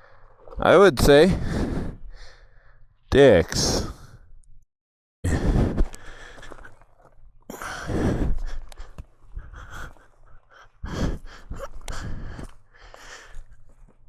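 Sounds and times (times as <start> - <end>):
person breathing hard: 1.3 - 2.8, 5.2 - 6.9, 7.5 - 14.0.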